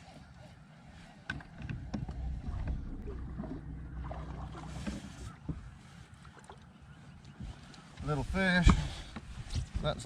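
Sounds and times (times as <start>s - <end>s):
electric trolling motor hum: 2.1s - 4.7s.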